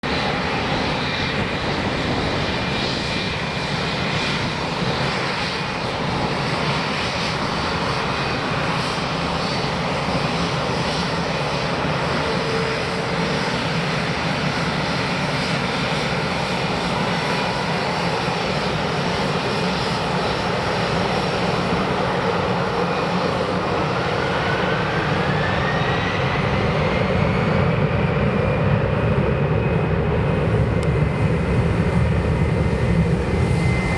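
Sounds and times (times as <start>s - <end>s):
airliner engines running: 0.0s - 33.9s
rising engine whine: 22.6s - 33.9s.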